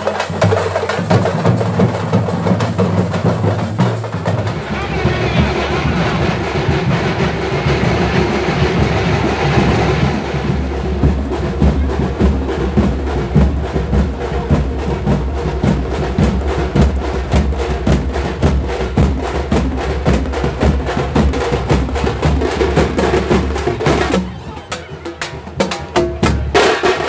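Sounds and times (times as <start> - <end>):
fast drumming: 0.0 - 27.0
rushing noise: 4.2 - 17.3.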